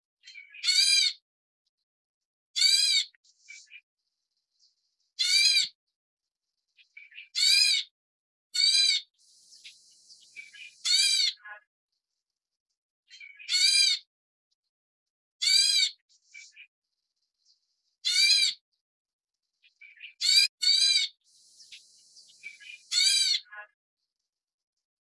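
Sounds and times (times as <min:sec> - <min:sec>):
harsh bird call: 0:05.2 - 0:05.8, 0:08.6 - 0:11.6, 0:18.0 - 0:18.6, 0:19.9 - 0:23.6.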